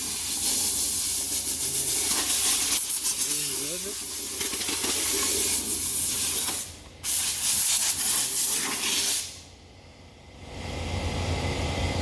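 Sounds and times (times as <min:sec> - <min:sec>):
harsh rubbing hiss on wheel rim: 0:00.0 - 0:09.4.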